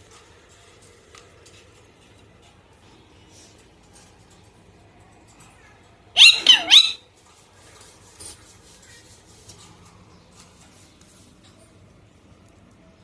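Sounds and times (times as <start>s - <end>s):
parrot call: 6.2s - 7.1s
faint scratching and rustling: 7.1s - 12.8s.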